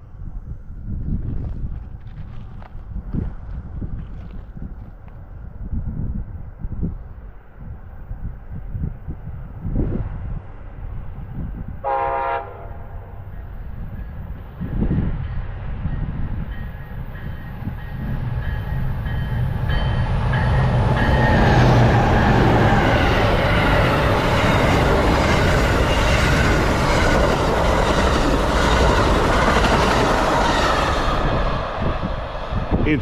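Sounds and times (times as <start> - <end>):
locomotive engine hum: 9.4 - 33.0
train wheels clattering on rails: 15.9 - 31.1.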